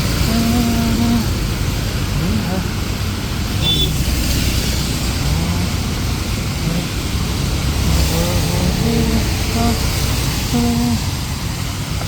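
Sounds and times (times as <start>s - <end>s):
rain: 0.0s - 12.0s
road traffic: 0.0s - 12.0s.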